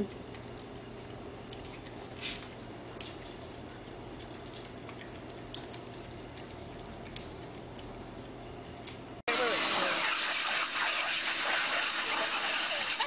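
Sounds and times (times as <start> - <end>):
puppy chewing and licking: 0.0 - 9.2
steady low hum: 0.0 - 9.2.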